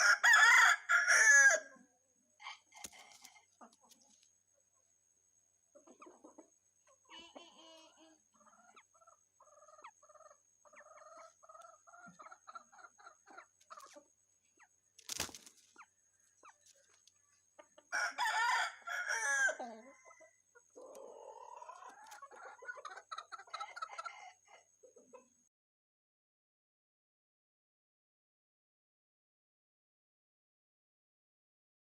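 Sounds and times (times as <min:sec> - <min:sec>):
rooster crowing: 0:00.0 - 0:01.7, 0:17.9 - 0:20.4
rooster clucking: 0:05.7 - 0:14.1, 0:16.4 - 0:25.3.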